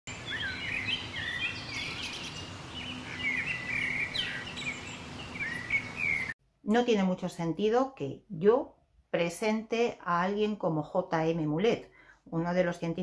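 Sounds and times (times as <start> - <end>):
small birds chirping: 0.1 - 6.4.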